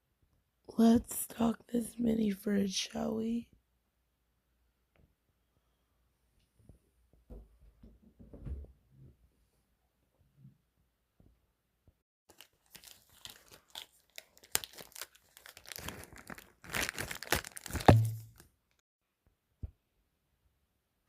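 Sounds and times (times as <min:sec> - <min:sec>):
plastic packaging crinkling: 0:12.3 - 0:18.5
sharp knock: 0:17.9 - 0:18.2.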